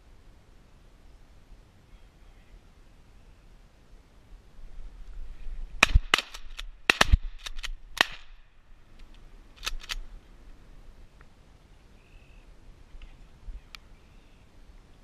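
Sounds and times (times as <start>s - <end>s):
shotgun shots: 5.8s - 8.5s.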